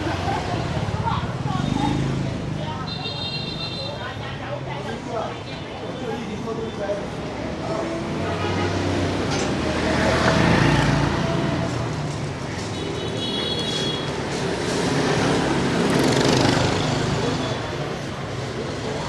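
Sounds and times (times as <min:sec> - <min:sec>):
passing vehicle engines: 0:00.0 - 0:02.9, 0:07.1 - 0:19.0.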